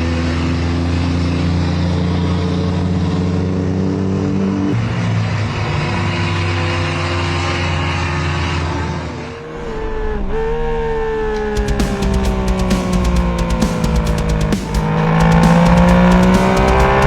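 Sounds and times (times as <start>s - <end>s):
vehicle engine running: 11.4s - 17.0s.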